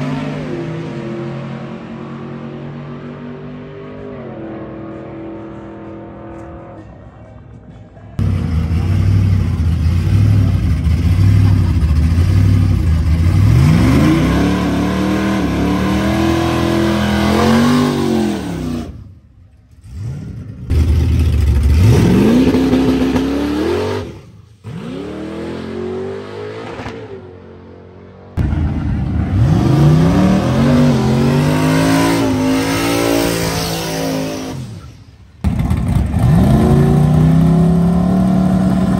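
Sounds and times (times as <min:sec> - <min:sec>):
truck engine revving: 0:08.2 - 0:38.9.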